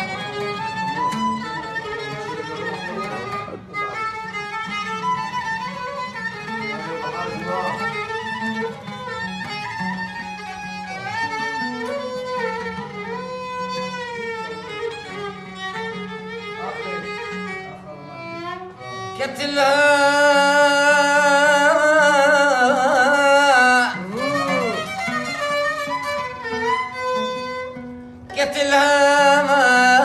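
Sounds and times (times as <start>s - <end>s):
violin playing ornamented melody: 0.0s - 30.0s.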